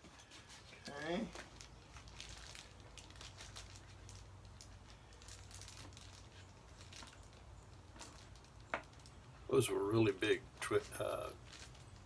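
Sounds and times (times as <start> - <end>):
packaging rustling and clicking: 0.2 - 9.4, 10.9 - 12.0.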